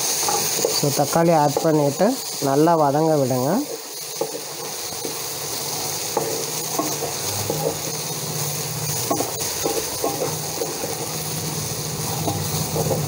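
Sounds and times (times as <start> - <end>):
onions sizzling in oil: 0.0 - 13.0
wooden spatula scraping pan: 4.2 - 11.2.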